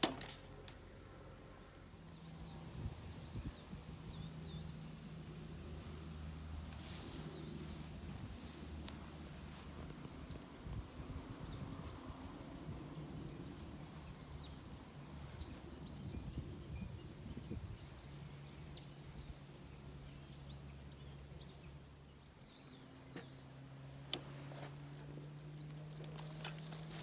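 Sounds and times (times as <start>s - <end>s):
small birds whistling: 9.4s - 10.4s, 13.4s - 21.5s.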